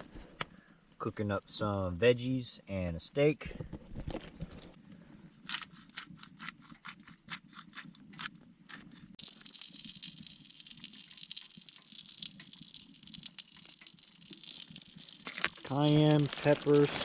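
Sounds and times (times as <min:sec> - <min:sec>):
food sizzling in a hot pan: 0:09.2 - 0:17.0.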